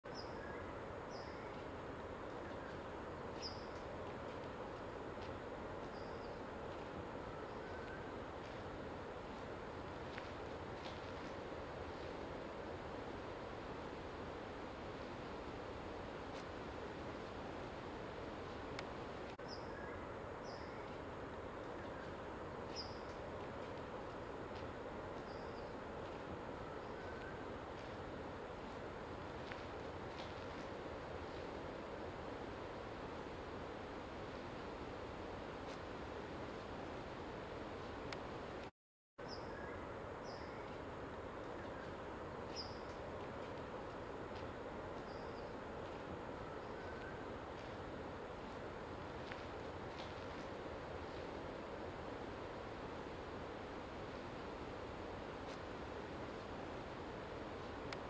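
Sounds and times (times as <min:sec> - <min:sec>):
steady outdoor hiss: 0:00.0 - 0:58.0
small bird chirping: 0:00.1 - 0:01.7, 0:03.4 - 0:03.9, 0:05.9 - 0:06.4, 0:22.7 - 0:23.2, 0:25.2 - 0:25.7, 0:42.5 - 0:43.0, 0:45.0 - 0:45.5.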